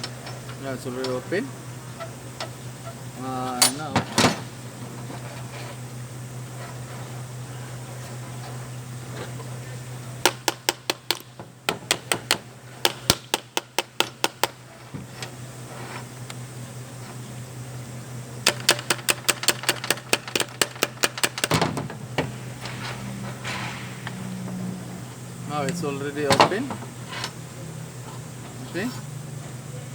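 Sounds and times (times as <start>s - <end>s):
steady low hum: 0.0s - 29.9s
ratchet wrench clicking: 18.4s - 21.5s.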